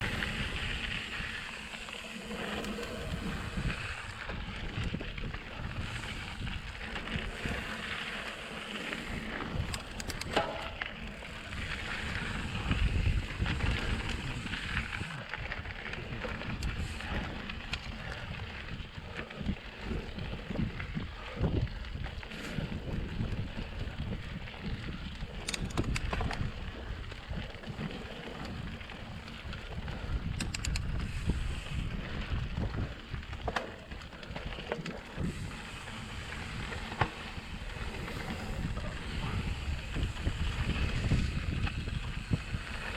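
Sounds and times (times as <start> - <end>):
bike rattling: 0.0 - 42.9
tyres rolling over dirt: 0.0 - 42.9
wind on microphone: 0.0 - 42.9
sharp clicks: 9.7 - 10.4, 25.5 - 26.3, 30.4 - 31.0.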